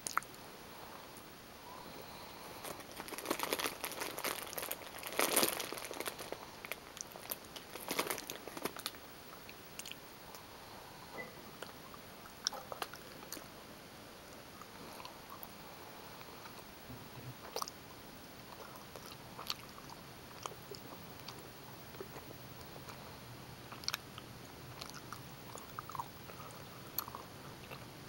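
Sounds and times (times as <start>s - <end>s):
chewing mouth clicks: 24.8s - 27.9s.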